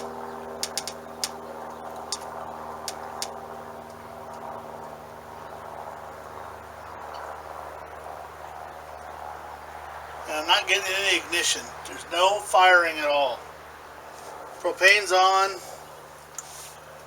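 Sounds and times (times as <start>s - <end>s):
sharp clicks: 0.0s - 1.4s.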